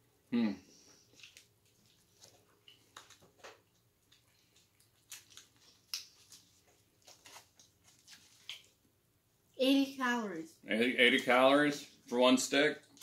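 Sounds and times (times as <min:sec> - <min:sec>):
chewing mouth clicks and smacks: 0:01.1 - 0:08.8.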